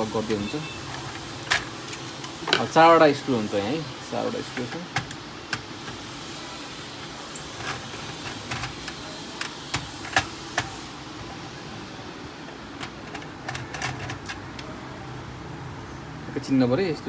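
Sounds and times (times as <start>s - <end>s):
screwdriver clicks and metallic taps: 4.6s - 6.0s.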